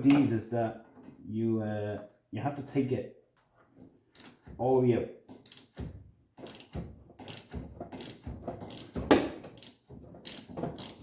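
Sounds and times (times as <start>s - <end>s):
ratchet wrench clicking: 6.5s - 6.7s, 7.3s - 9.0s, 9.6s - 11.0s.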